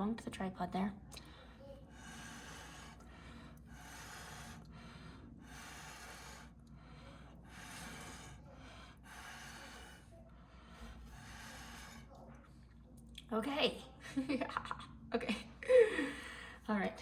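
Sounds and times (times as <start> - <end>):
breath intakes: 1.2 - 12.1.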